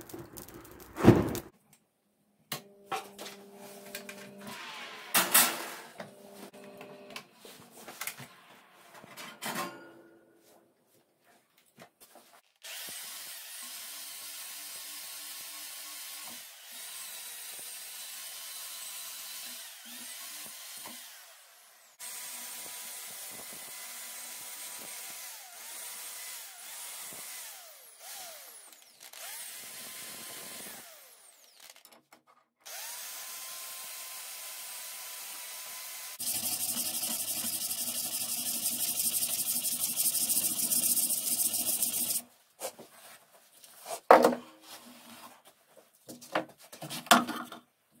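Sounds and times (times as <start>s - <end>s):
power drill whining: 12.6s - 31.8s, 32.6s - 42.3s.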